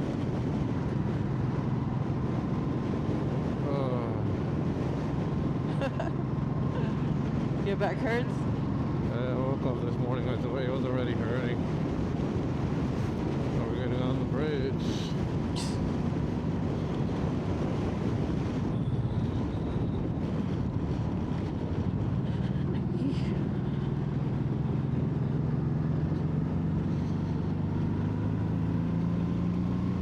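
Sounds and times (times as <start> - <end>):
wind rush on microphone: 0.0 - 30.0
motorcycle engine running: 21.4 - 30.0.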